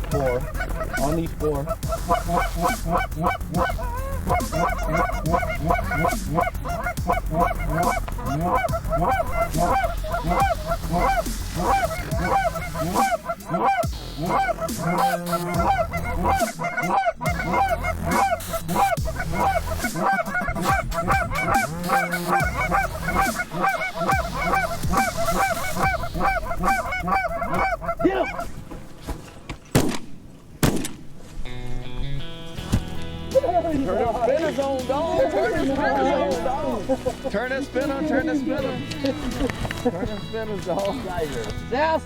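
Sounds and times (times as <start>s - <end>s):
steady low rumble: 0.0s - 16.6s, 17.2s - 28.5s
geese honking: 0.0s - 29.0s, 33.5s - 41.6s.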